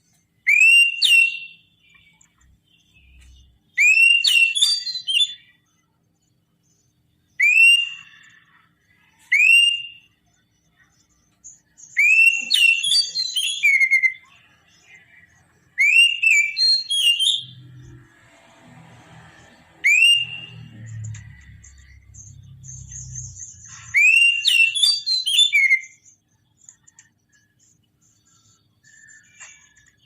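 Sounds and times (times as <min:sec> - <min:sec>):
bird singing whistled phrases: 0:00.4 - 0:02.0, 0:02.9 - 0:05.6, 0:07.3 - 0:10.2, 0:11.8 - 0:14.3, 0:15.7 - 0:17.9, 0:19.8 - 0:26.1.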